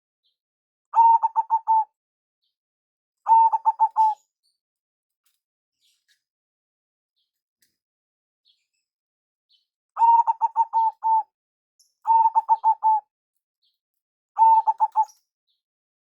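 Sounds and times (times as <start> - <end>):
dove cooing: 1.0 - 1.9, 3.3 - 4.2, 10.0 - 11.3, 12.1 - 13.0, 14.4 - 15.2.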